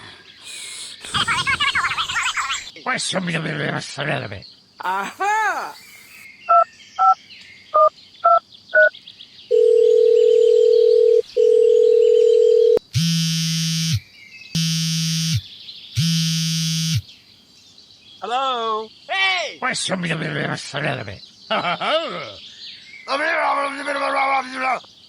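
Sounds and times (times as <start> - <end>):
dial tone: 9.5 - 12.8
buzzing telephone rings: 9.5 - 14.0.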